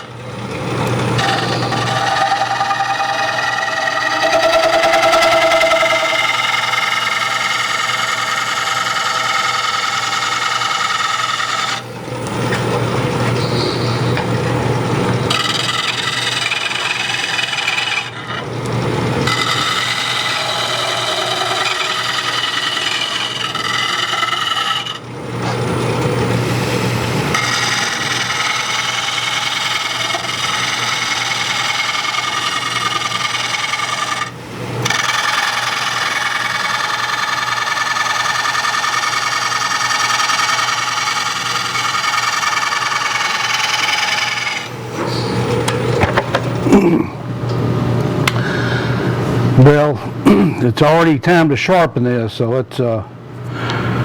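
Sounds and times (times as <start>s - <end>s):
gouge scraping wood on lathe: 0.9s - 11.9s, 15.2s - 18.5s, 19.1s - 25.1s, 26.6s - 44.8s.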